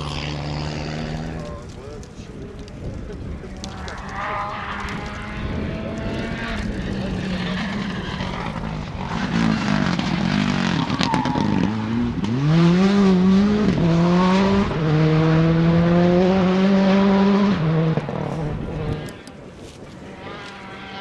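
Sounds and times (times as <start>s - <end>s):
sharp crack: 0.0s - 12.4s
rally car engine accelerating: 0.0s - 19.2s, 20.1s - 21.0s.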